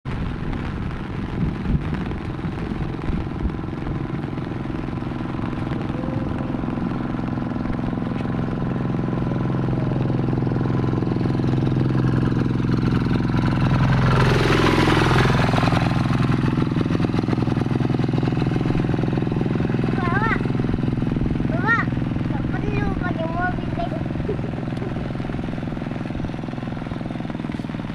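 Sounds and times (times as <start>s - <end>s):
engine running: 0.0s - 27.9s.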